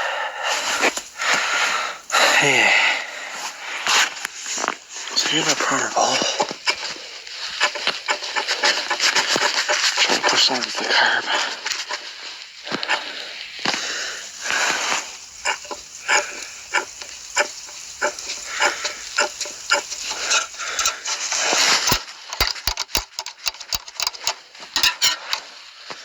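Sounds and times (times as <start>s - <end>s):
sharp clicks: 13.7s - 25.4s.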